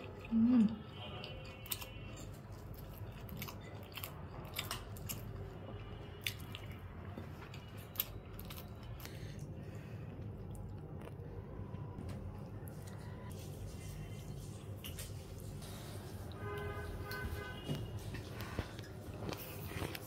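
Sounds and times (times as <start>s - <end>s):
person chewing rice: 0.0s - 11.7s, 18.0s - 20.0s.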